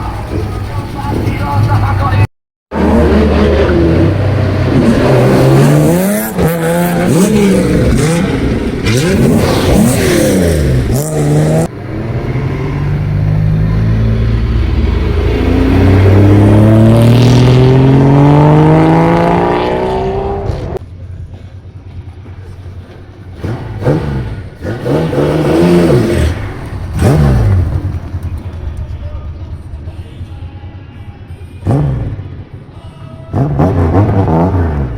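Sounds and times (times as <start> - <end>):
loud car exhaust revving: 2.7 - 20.8, 23.4 - 28.3, 31.6 - 32.3, 33.3 - 34.9.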